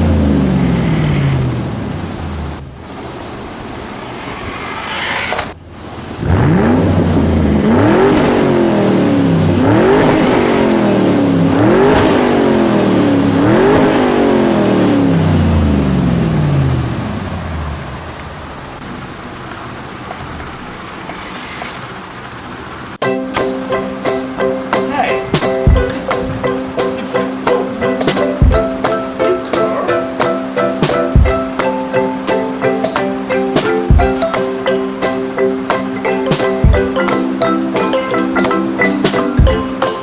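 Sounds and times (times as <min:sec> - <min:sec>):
engine revving: 0:00.0 - 0:18.7
engine running steadily: 0:00.0 - 0:40.0.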